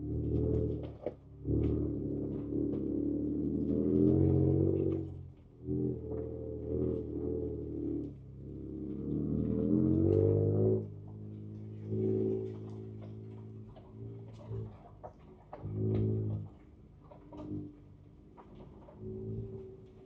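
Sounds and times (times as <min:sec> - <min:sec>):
engine revving from inside cab: 0:00.0 - 0:14.8.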